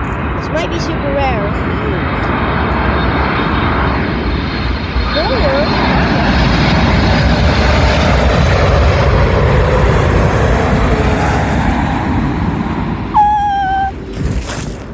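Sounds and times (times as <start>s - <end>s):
jet airliner flying overhead: 0.0s - 14.9s
steady high tone: 13.2s - 14.0s.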